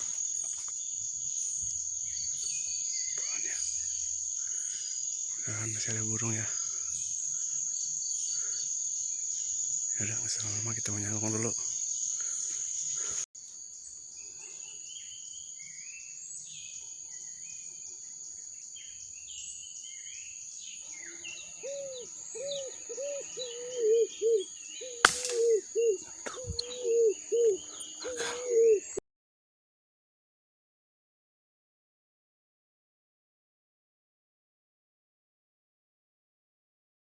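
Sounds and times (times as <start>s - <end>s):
low repeated arching bird calls: 0.0s - 13.2s, 13.9s - 29.0s
high insect trill: 0.0s - 29.0s
small bird chirps: 18.4s - 29.0s
sharp click: 25.1s - 25.6s.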